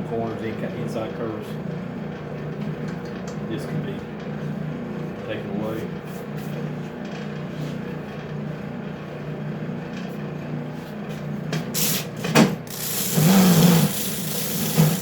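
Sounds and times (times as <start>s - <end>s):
sander humming: 12.7s - 15.0s.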